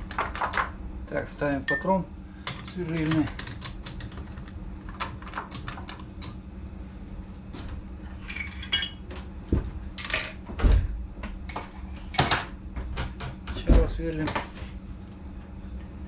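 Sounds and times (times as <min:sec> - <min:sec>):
metal tooling clinking and knocking: 0:08.2 - 0:09.0.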